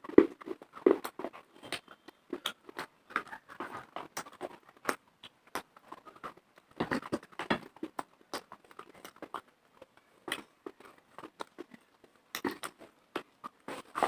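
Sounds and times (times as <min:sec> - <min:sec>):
person chewing dry clay crunches: 0:00.0 - 0:14.0.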